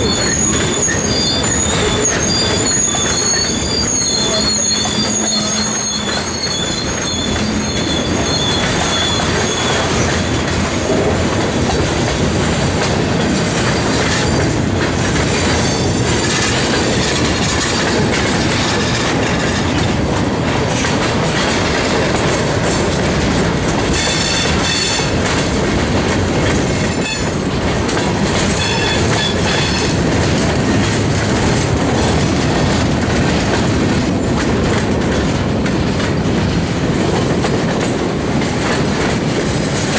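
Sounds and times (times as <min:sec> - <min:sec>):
wheels squealing: 0:00.0 - 0:10.7, 0:12.6 - 0:19.8, 0:28.4 - 0:30.1
clickety-clack over rail joints: 0:00.0 - 0:39.9
freight train cars rolling: 0:00.0 - 0:39.9.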